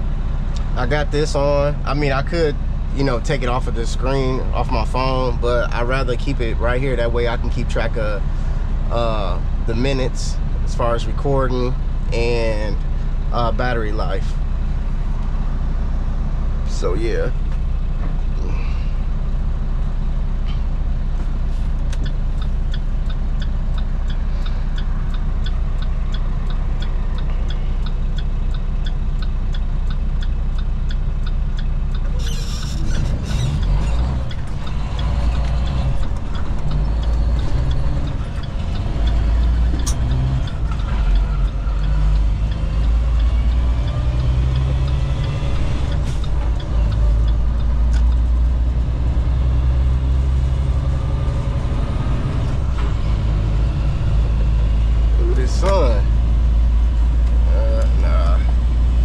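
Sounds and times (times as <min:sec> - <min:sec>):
diesel truck engine running: 0:00.0 - 0:59.0
light even ticking: 0:21.8 - 0:51.6.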